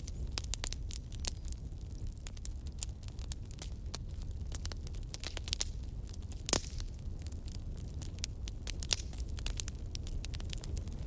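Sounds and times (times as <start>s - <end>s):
fireplace fire crackling: 0.0s - 11.0s.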